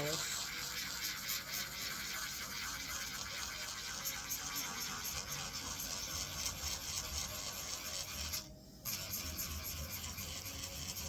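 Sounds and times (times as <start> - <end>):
electric nail drill grinding: 5.0 - 11.0.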